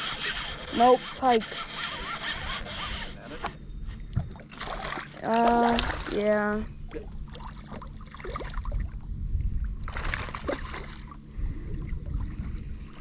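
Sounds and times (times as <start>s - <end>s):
water sloshing and trickling: 4.0s - 13.0s
steady low rumble: 5.2s - 13.0s.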